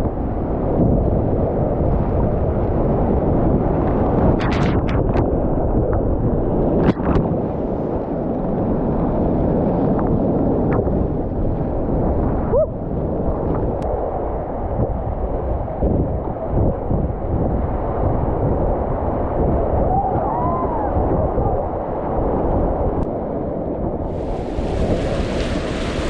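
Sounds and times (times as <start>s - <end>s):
wind buffeting microphone: 0.0s - 26.0s
fast river water rushing: 24.1s - 26.0s.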